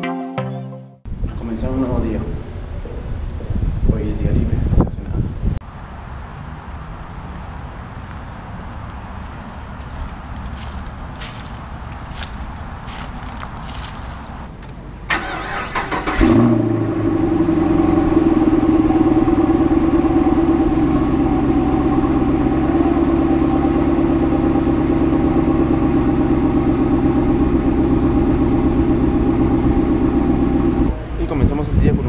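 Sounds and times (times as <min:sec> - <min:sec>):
car engine starter cranking: 0:15.1 - 0:16.7
car engine idling: 0:15.1 - 0:31.3.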